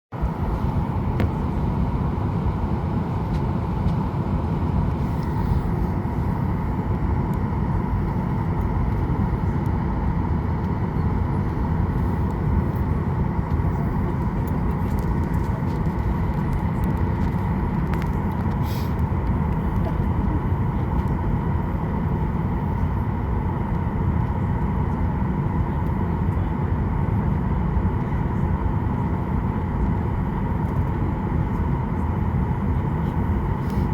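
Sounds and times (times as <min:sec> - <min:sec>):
airplane cabin rumble and air rush: 0:00.1 - 0:33.9
faint steady whine: 0:00.2 - 0:33.9.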